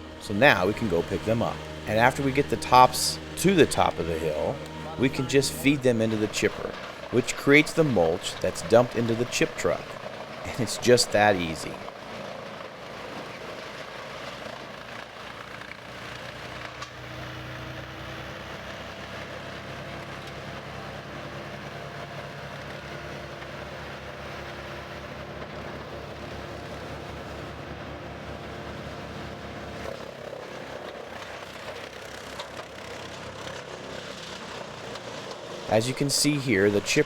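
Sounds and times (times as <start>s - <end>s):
branches fed through chipper: 0.0s - 37.0s
brush chipper engine running: 0.0s - 37.0s.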